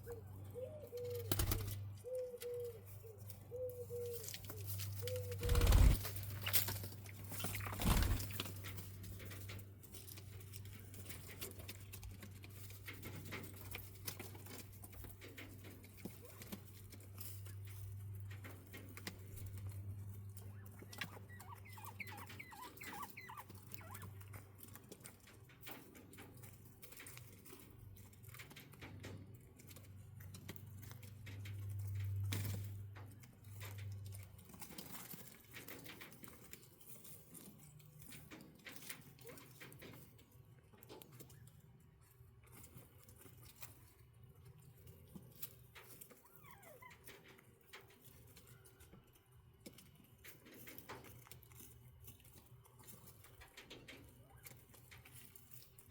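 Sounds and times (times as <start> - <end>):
quail chirps: 0.0 - 5.8, 20.4 - 24.4
quail scratching and pecking: 0.0 - 55.9.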